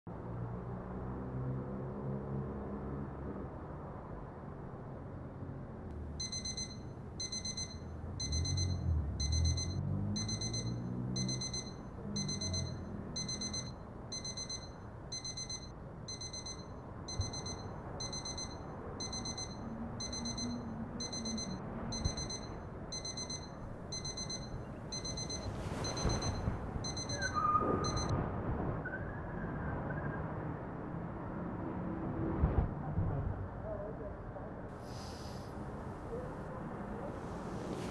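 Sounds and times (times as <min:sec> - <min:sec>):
smartphone alarm beeping: 0:06.0 - 0:28.1.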